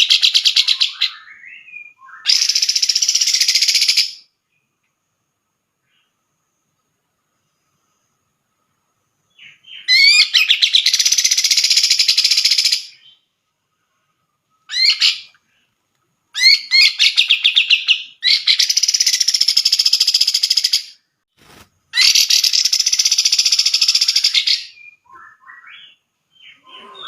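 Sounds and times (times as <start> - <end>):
bulbul singing chattering phrases: 22.0 - 27.0.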